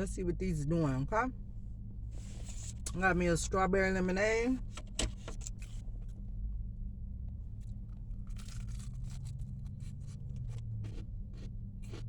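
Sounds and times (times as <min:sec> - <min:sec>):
low steady hum: 0:00.0 - 0:12.0
crunching fried chicken: 0:07.9 - 0:12.0.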